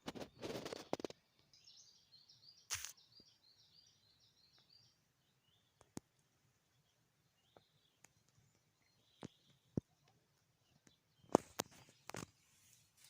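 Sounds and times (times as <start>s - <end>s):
faint bird song: 0.0s - 13.0s
sharp click: 2.7s - 3.0s.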